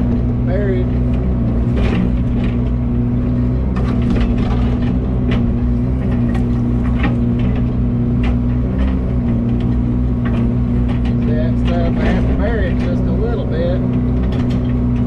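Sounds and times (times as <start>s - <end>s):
excavator engine running: 0.0s - 15.0s.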